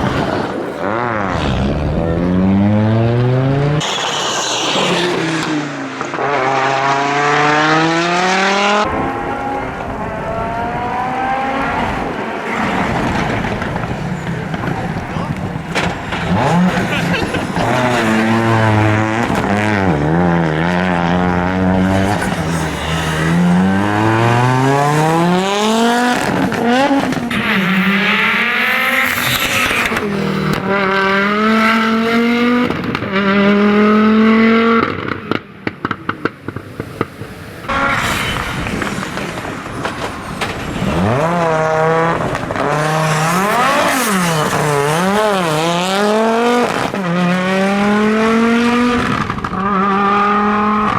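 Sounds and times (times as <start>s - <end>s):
rally car engine revving: 0.0s - 50.9s
exhaust crackles and pops: 12.5s - 20.0s, 32.6s - 33.2s, 34.8s - 42.8s, 48.9s - 49.8s.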